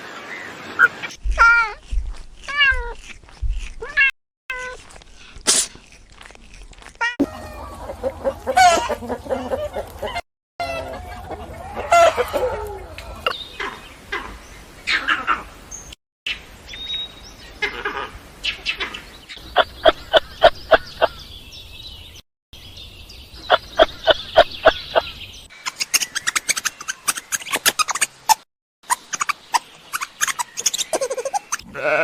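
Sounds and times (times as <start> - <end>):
chickens clucking and calling: 7.2 - 15.0, 19.5 - 21.2, 23.5 - 25.1.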